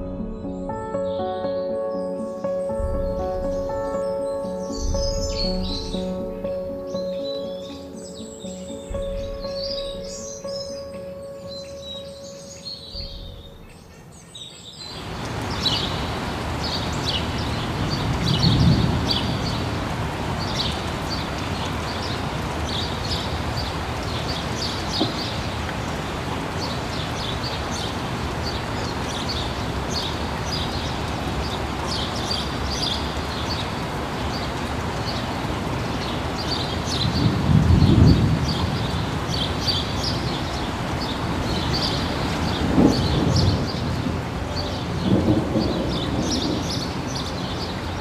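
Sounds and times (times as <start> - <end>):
small birds chirping: 0.3 - 19.8, 20.4 - 48.0
rushing outdoor noise: 2.3 - 48.0
low rumble: 2.8 - 4.0, 4.7 - 6.6, 8.9 - 10.2.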